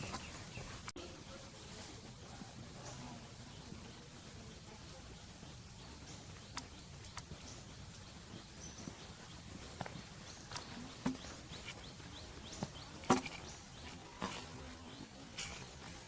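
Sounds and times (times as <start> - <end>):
sharp clicks and taps: 6.4 - 8.0.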